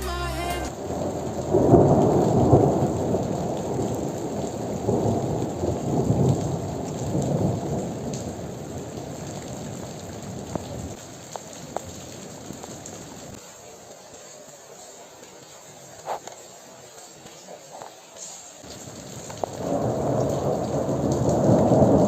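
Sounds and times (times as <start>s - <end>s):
heavy rain: 0.0s - 22.0s
rolling thunder: 0.7s - 11.0s, 18.8s - 22.0s.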